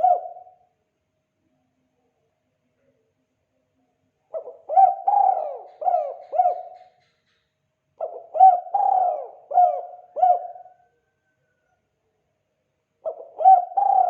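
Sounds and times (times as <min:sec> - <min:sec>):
dove cooing: 0:00.0 - 0:00.6, 0:04.3 - 0:07.0, 0:08.0 - 0:11.3, 0:13.0 - 0:14.0.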